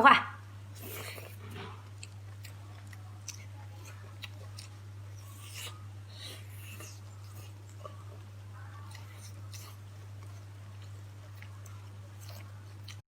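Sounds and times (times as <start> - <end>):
steady low hum: 0.0 - 13.0
chewing clicks and smacks: 0.8 - 5.8, 8.9 - 13.0.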